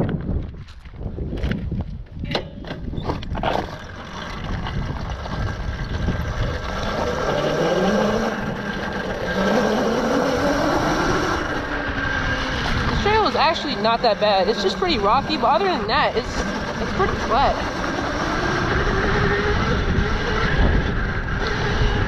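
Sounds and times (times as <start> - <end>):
electric dirt bike motor whine: 2.8 - 22.0
steady rushing noise: 4.8 - 22.0.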